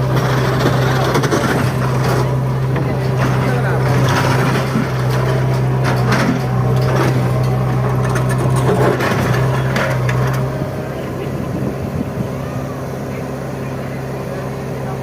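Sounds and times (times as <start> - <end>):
knocks and rattles: 0.0 - 10.6
bulldozer engine droning: 0.0 - 15.0.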